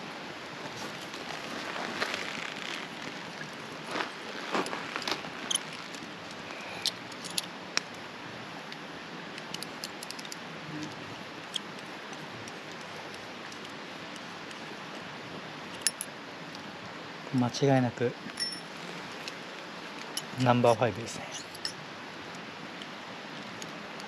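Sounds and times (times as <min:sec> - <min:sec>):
background hiss: 0:00.0 - 0:24.0.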